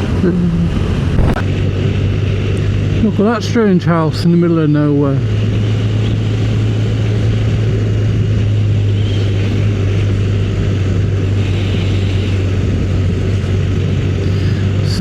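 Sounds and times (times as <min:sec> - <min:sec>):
motorcycle engine droning: 0:00.0 - 0:15.0
wind and road noise: 0:00.0 - 0:15.0.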